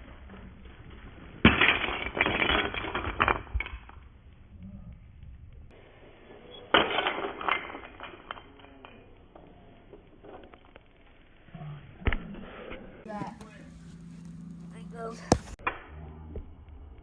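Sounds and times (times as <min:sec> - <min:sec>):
wooden blocks clattering: 0:00.1 - 0:04.2, 0:06.7 - 0:10.9.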